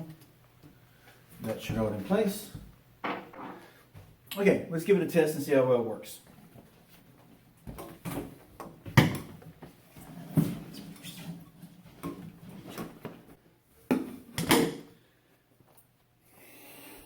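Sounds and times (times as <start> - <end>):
knocks and clunks of parts: 3.0 - 3.7.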